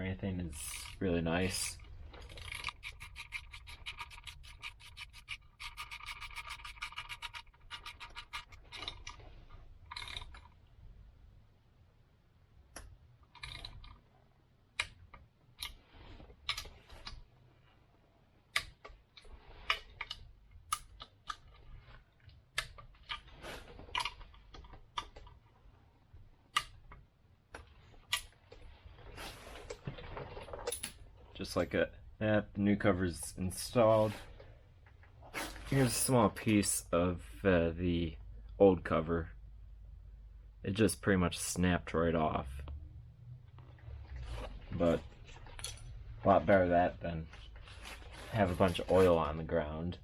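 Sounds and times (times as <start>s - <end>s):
ratchet clicking: 2.4s - 9.0s.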